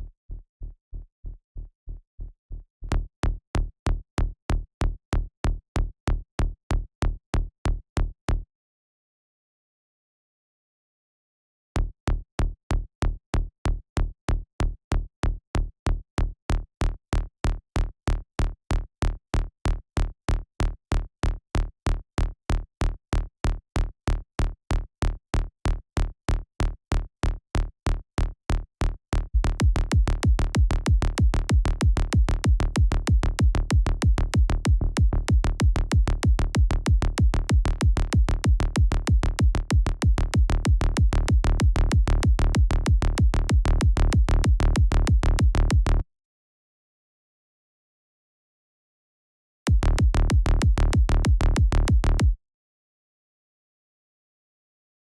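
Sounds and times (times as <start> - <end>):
synth bass: 0.0 - 4.6, 29.2 - 46.0, 49.7 - 52.4
electronic kick drum loop: 29.4 - 46.0, 49.7 - 52.4.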